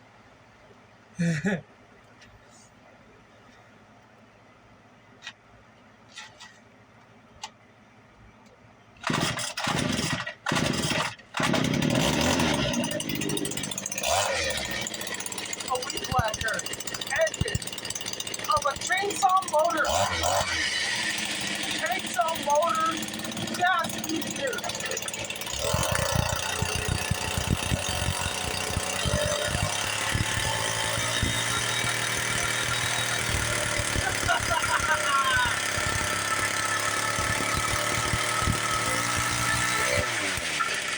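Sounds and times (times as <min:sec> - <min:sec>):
small two-stroke engine starting: 0:09.0 - 0:40.9.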